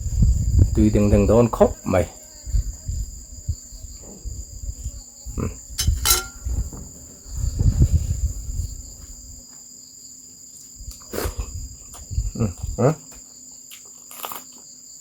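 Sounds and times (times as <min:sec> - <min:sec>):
crickets trilling: 0:00.0 - 0:15.0
person chewing: 0:13.7 - 0:14.6.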